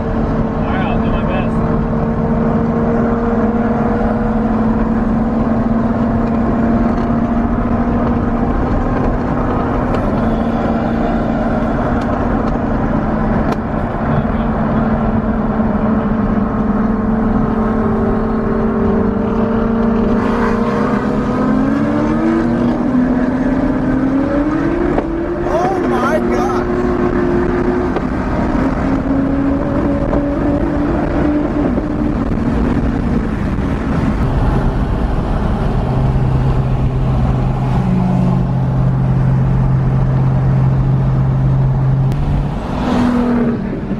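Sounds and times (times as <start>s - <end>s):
car engine and exhaust droning: 0.0s - 43.9s.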